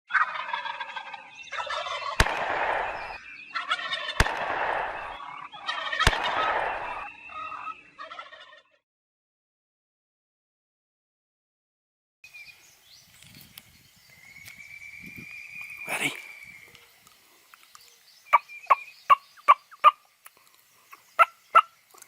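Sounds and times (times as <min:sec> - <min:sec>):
turkey gobbling: 0:00.1 - 0:08.8, 0:18.3 - 0:20.0, 0:20.9 - 0:21.8
sharp clicks: 0:02.2 - 0:03.2, 0:04.2 - 0:05.0.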